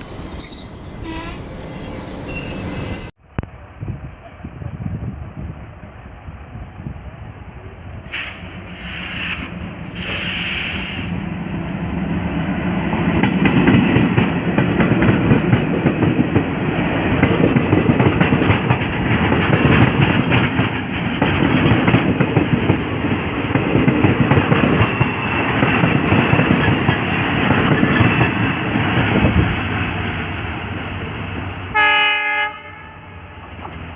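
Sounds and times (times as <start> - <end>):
diesel locomotive engine rumble: 0.0 - 33.9
train wheels clicking over rail joints: 13.1 - 29.9
train horn: 31.7 - 33.4.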